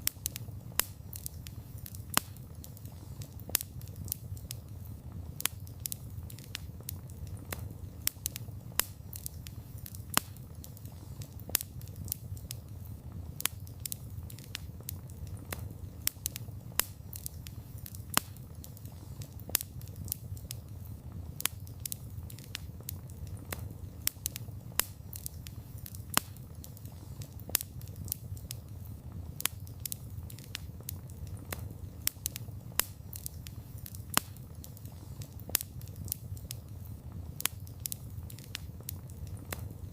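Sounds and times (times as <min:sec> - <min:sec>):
burning wood crackling and popping: 0:00.0 - 0:39.9
low rumble of flames: 0:00.0 - 0:39.9.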